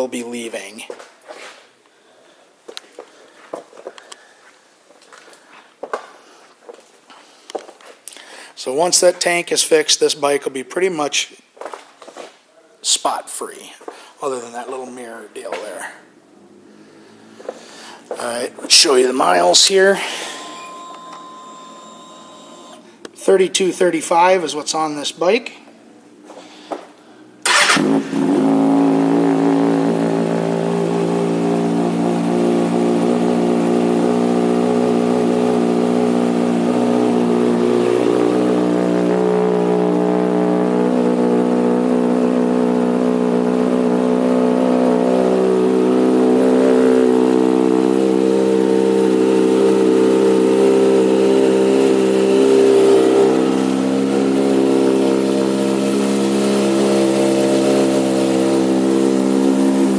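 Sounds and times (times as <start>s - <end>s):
motorcycle engine starting and idling: 27.2s - 59.9s.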